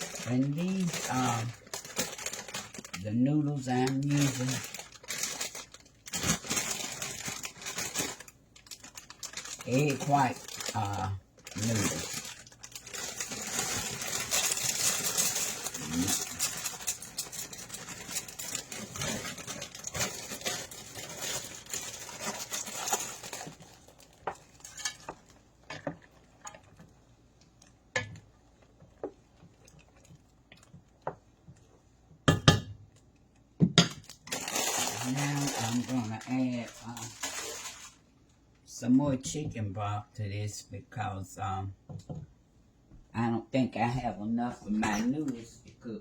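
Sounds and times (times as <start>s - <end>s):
dry noodles rustling into a pot: 0.0s - 31.8s, 34.0s - 38.1s.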